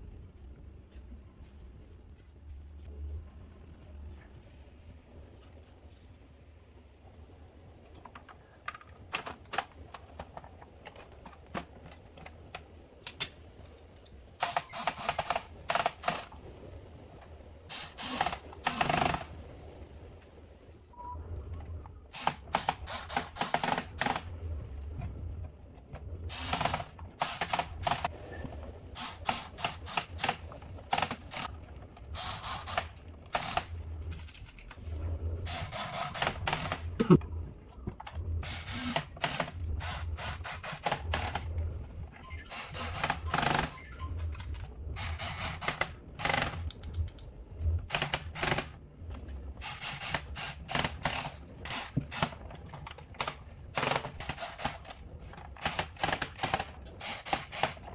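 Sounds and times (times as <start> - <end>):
hand tools clicking and scraping: 49.6 - 57.9.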